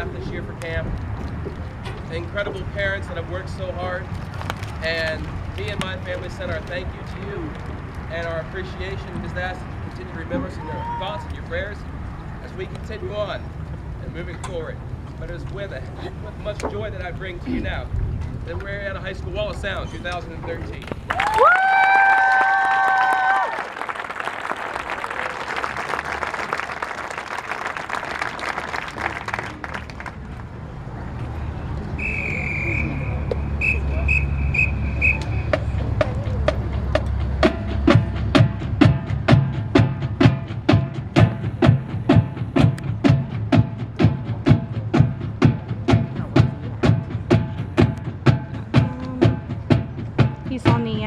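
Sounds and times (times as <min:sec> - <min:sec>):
crowd applauding and cheering: 0:21.0 - 0:30.3
marching band playing: 0:32.0 - 0:51.0.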